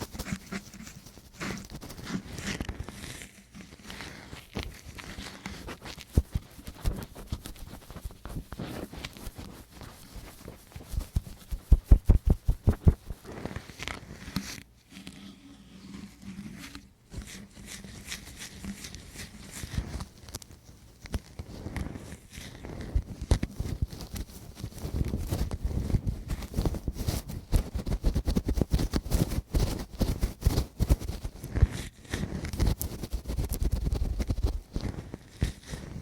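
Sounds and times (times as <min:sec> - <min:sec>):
heavier thuds on microphone: 0:11.3 - 0:13.2.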